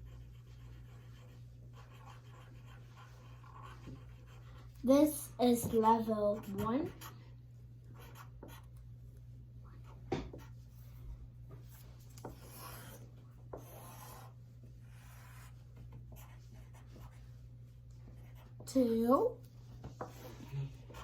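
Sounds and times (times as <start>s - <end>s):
pencil scratching on paper: 0.0s - 7.2s, 8.0s - 8.7s, 11.7s - 17.4s, 18.0s - 18.7s, 19.7s - 21.0s
low steady hum: 0.0s - 21.0s.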